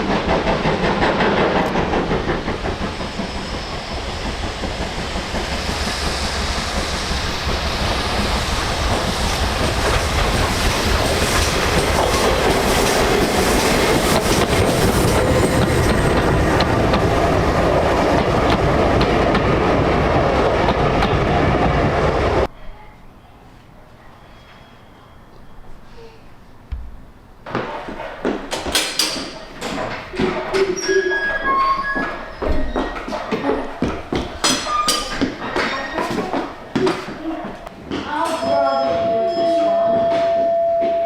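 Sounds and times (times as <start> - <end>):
train wheels clicking over rail joints: 0.0 - 21.5, 27.4 - 41.0.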